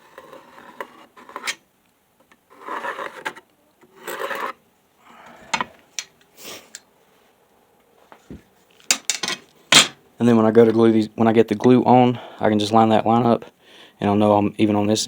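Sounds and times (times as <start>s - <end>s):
pencil scratching on wood: 0.0s - 1.6s, 2.5s - 4.6s.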